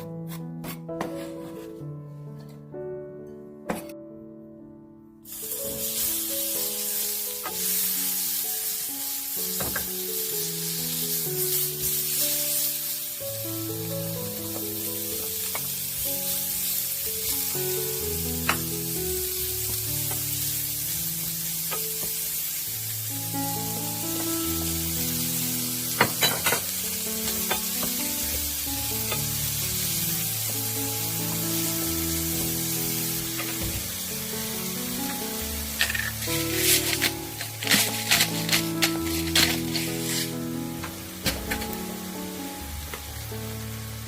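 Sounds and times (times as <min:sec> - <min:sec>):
soft background music: 0:00.0 - 0:44.0
wood fire crackling: 0:32.2 - 0:42.4.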